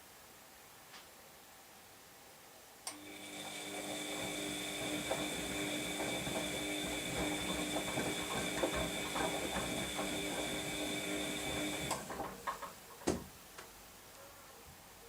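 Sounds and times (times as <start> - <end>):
washing machine drum motor whining: 2.9 - 12.7
clicking and clattering: 11.5 - 13.3.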